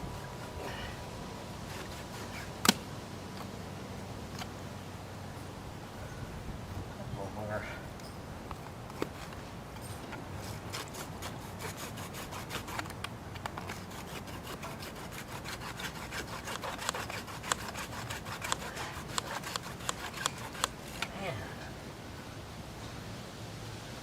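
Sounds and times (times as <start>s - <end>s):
handsaw rasping through plastic pipe: 1.7s - 2.8s, 10.4s - 21.1s.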